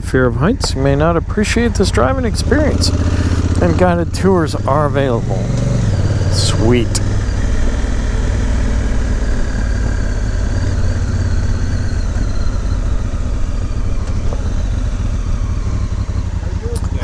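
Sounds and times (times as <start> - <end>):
motorcycle engine idling rumble: 0.0 - 17.0.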